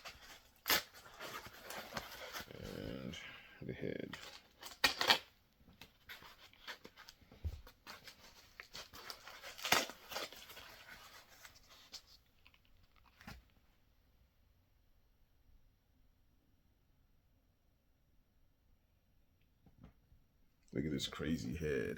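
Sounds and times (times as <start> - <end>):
packaging torn and crinkled: 0.0 - 3.1, 4.1 - 5.3, 7.9 - 13.4.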